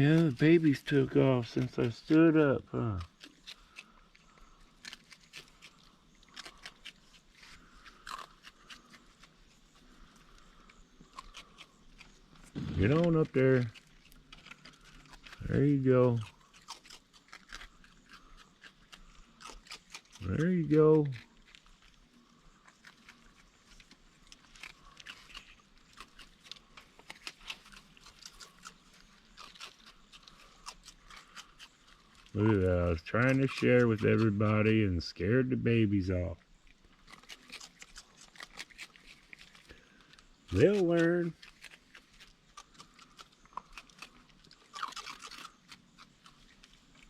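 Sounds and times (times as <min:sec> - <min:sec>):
raccoon crunching food: 0:00.0 - 0:47.0.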